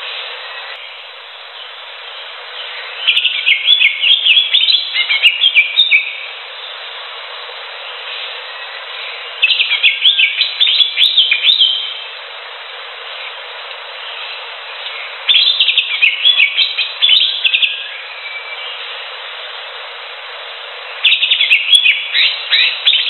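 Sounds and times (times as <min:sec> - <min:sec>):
steady background hiss: 0:00.0 - 0:23.0
bird chirping rapidly: 0:02.6 - 0:06.2, 0:09.0 - 0:12.0, 0:15.0 - 0:18.8, 0:21.0 - 0:23.0.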